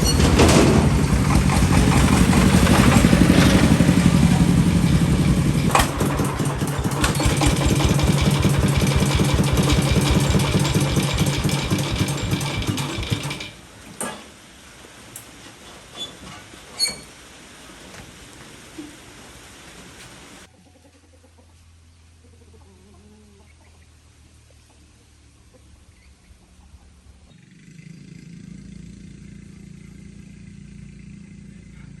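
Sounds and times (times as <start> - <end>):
tractor engine running: 0.0 - 13.7.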